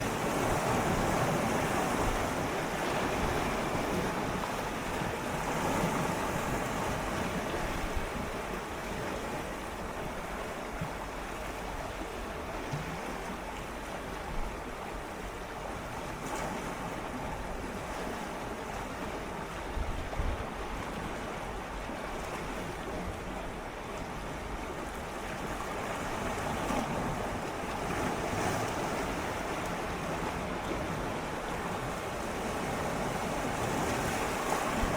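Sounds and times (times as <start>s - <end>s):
waves lapping against rocks: 0.0s - 34.9s
wind on microphone: 19.5s - 21.3s.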